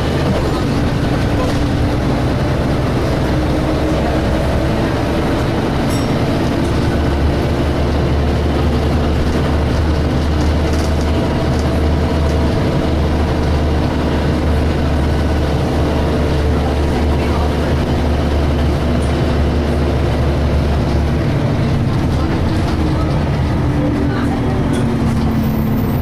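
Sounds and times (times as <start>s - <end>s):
bus engine drone: 0.0s - 26.0s.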